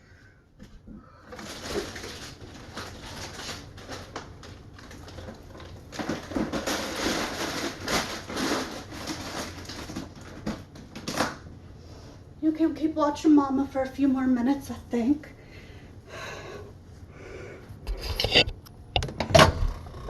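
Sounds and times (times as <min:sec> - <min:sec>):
bag rustling and crinkling: 0:01.3 - 0:11.3.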